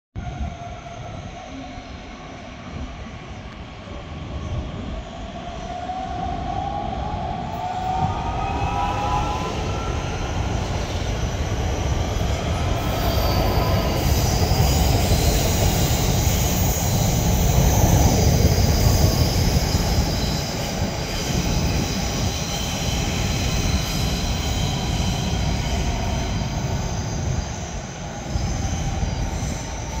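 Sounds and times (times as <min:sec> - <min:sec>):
train wheels rumbling: 0:04.1 - 0:30.0
thin high squealing tones: 0:07.4 - 0:30.0.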